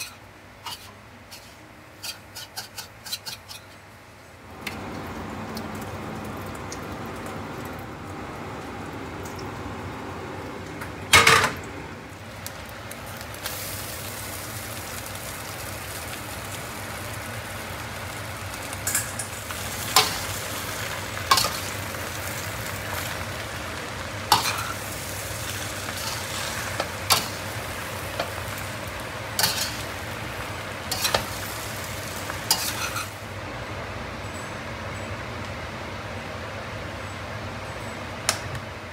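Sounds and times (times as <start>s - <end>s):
noodles sizzling in a wok: 0.0s - 7.6s, 12.1s - 34.1s.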